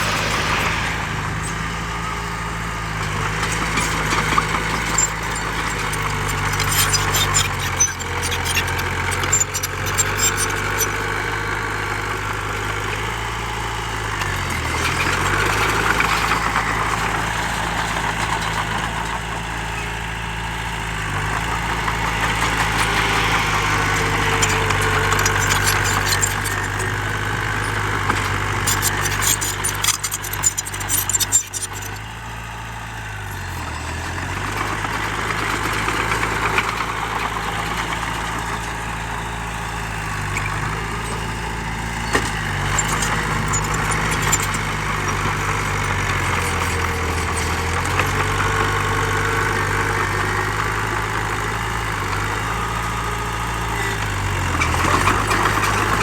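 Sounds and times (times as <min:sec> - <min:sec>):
heavy diesel engine running: 0:00.0 - 0:56.0
clattering rattle: 0:24.4 - 0:32.0.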